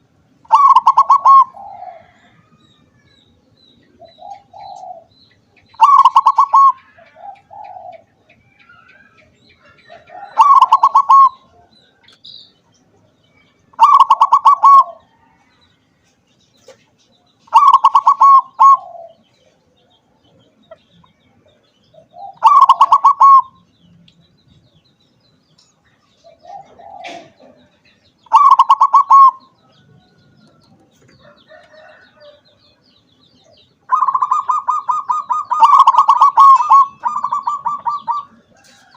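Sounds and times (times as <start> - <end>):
dove cooing: 0.0 - 2.6, 3.9 - 11.9, 13.7 - 15.4, 17.5 - 19.6, 21.9 - 23.6, 26.2 - 30.1, 33.9 - 38.9.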